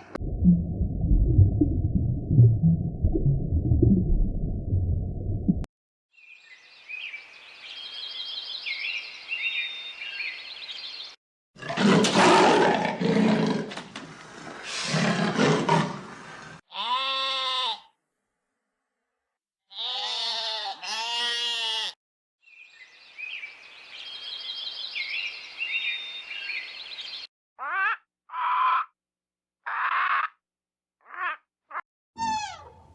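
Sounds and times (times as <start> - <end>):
bird chirps: 6.2 - 11.2, 22.4 - 27.3.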